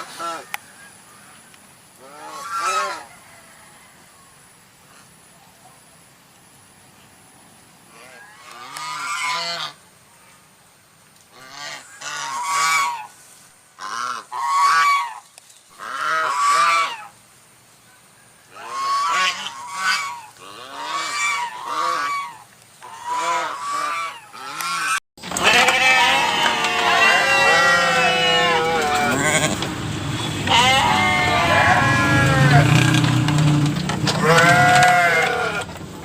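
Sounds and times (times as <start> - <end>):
geese honking: 2.0 - 3.4, 7.9 - 9.8, 11.4 - 13.2, 13.8 - 15.2, 15.8 - 17.2, 18.5 - 35.8.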